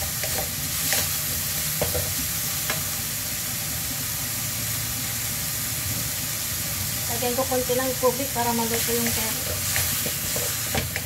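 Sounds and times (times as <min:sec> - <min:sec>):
food sizzling in a frying pan: 0:00.0 - 0:11.0
spatula scraping a pan: 0:08.7 - 0:10.8.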